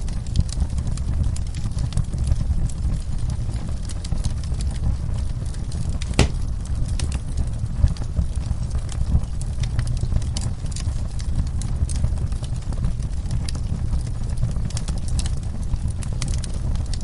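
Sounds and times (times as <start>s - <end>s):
low rumble of flames: 0.0s - 17.0s
wood fire crackling: 0.0s - 17.0s
loud fire pop: 6.0s - 6.5s.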